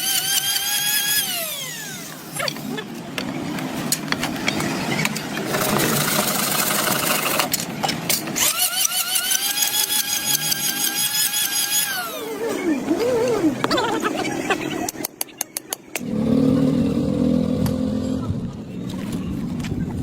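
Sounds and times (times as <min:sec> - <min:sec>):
power tool motor whining: 0:00.0 - 0:02.6, 0:08.4 - 0:13.4.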